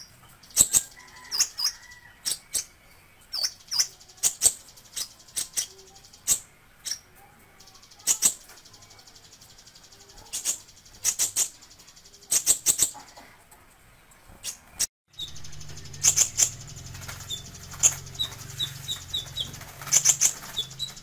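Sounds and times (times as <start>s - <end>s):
bird high chirps: 0.0s - 13.3s, 14.4s - 21.0s
high-pitched buzzing trill: 15.1s - 21.0s.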